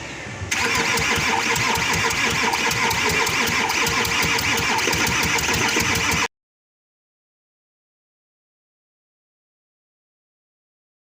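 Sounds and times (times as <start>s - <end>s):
diesel engine cranking on starter: 0.5s - 6.3s.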